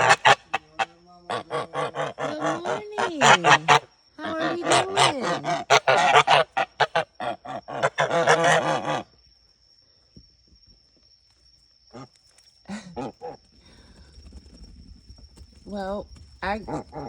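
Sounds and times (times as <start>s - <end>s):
goose honking: 0.0s - 9.1s.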